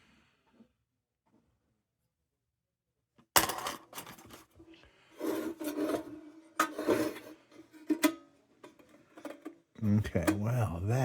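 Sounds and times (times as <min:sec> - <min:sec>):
scraping and rubbing on tin: 0:05.2 - 0:08.0.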